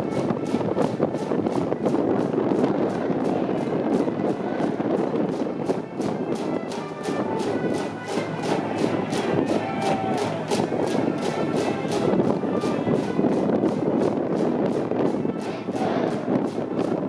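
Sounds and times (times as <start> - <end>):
brass band playing: 6.0 - 13.5, 15.3 - 16.3
steady drum beat: 6.4 - 12.7.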